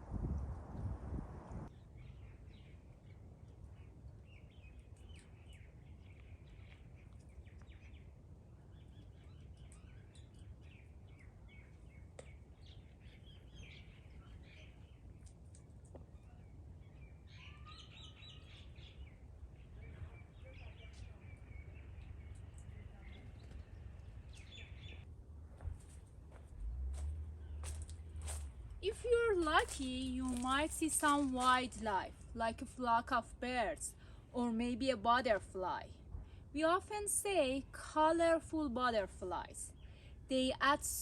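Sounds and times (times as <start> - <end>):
low steady rumble: 0.0 - 3.2, 10.6 - 40.8
small birds chirping: 1.7 - 25.1.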